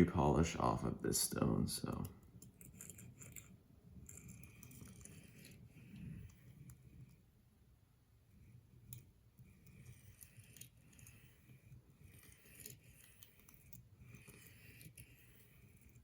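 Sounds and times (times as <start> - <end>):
knife blade scraping on stone: 2.5 - 7.1, 8.8 - 16.0.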